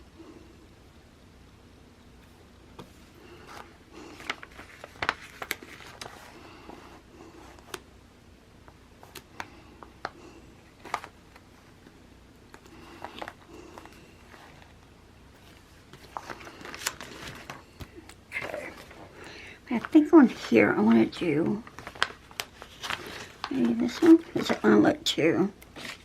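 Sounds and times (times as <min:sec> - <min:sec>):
paper rustling: 0:02.8 - 0:07.8, 0:09.0 - 0:11.9, 0:12.5 - 0:14.8, 0:15.4 - 0:24.8, 0:25.7 - 0:26.0.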